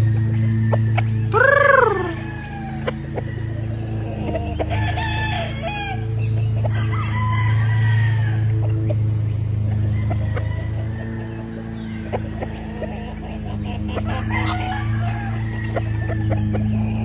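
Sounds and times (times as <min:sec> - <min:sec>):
roosters crowing: 0:00.5 - 0:03.3, 0:04.5 - 0:08.6, 0:14.0 - 0:16.6.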